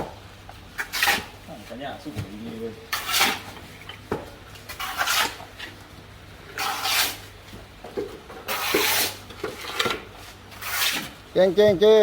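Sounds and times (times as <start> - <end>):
trowel scraping mortar on wall: 0.8 - 1.3, 2.9 - 3.6, 4.7 - 5.5, 6.5 - 7.2, 8.4 - 9.8, 10.5 - 11.2.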